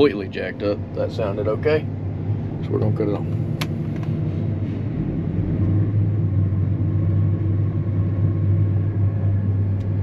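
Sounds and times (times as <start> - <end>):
combine harvester running: 0.0 - 10.0.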